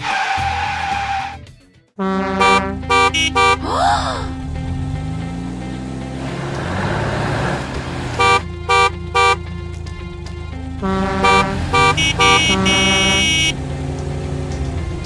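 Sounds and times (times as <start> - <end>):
background music: 0.0 - 15.0
cartoon car horns honking: 2.0 - 3.8, 8.1 - 9.5, 10.8 - 13.6.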